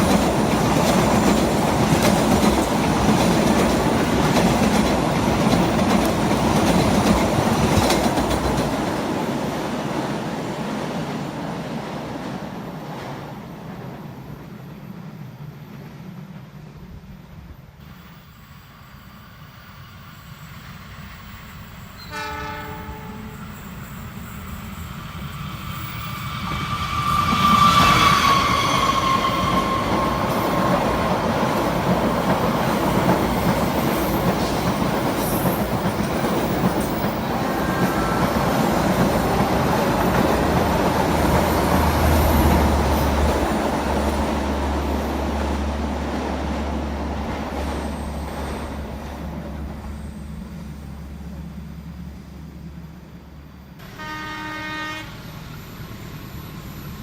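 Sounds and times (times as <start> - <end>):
rumble and clatter of passing train: 0.0 - 57.0
locomotive horn blast: 22.0 - 23.4, 53.8 - 55.6.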